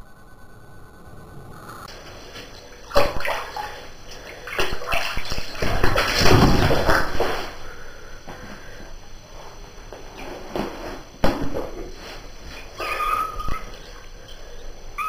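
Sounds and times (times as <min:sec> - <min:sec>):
water sloshing in a bathtub: 0:01.9 - 0:07.9, 0:10.2 - 0:15.0.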